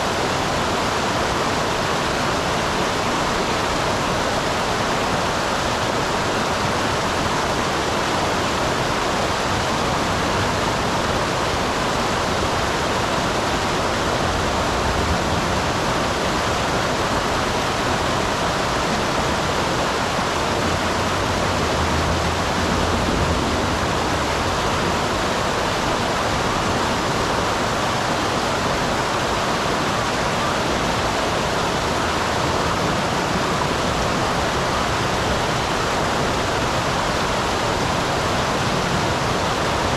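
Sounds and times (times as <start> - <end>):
small waterfall roaring: 0.0 - 39.9.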